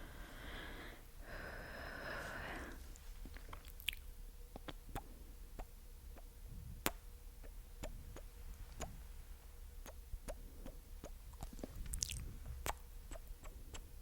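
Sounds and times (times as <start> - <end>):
wet mouth clicks and pops: 3.2 - 5.7, 7.8 - 9.0, 9.8 - 13.8.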